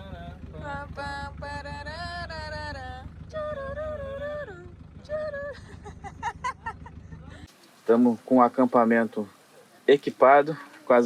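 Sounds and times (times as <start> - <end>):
person humming a slow melody: 0.0 - 5.6
steady low rumble: 0.0 - 9.4.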